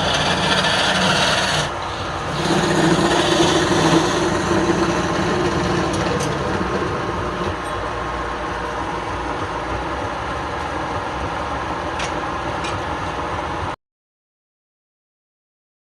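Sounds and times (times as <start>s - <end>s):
tool rasping on spinning wood: 0.0s - 7.6s
wood lathe running: 0.0s - 12.5s.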